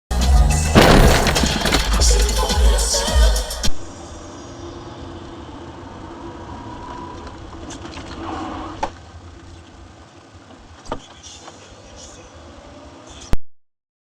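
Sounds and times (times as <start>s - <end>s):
sharp knock: 0.8s - 2.1s
car engine and road noise: 3.7s - 13.4s.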